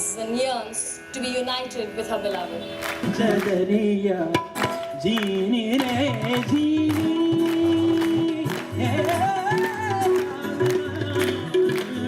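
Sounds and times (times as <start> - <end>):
steady drum beats: 2.8 - 12.0.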